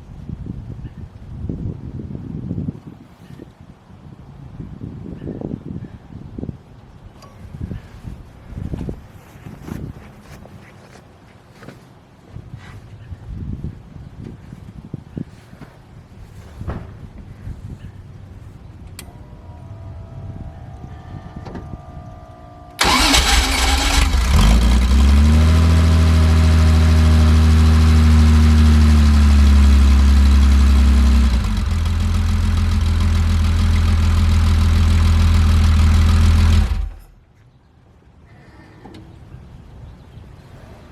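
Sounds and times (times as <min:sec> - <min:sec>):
car engine starting and idling: 0:18.3 - 0:37.1.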